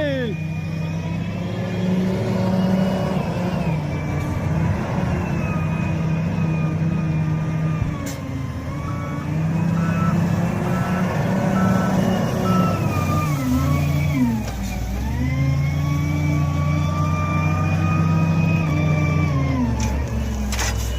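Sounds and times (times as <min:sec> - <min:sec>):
diesel engine running: 0:00.0 - 0:20.9
two-tone reversing alarm beeping: 0:08.8 - 0:14.2.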